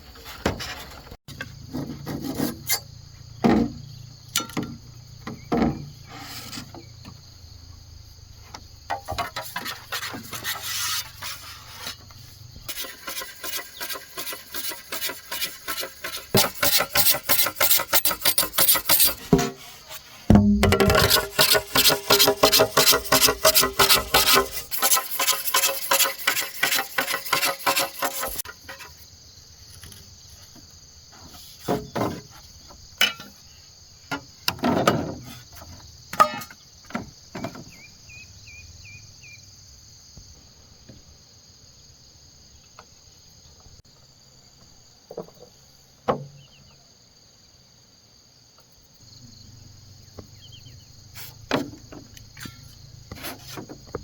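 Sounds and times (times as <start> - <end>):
scattered knocks: 20.3 - 24.7.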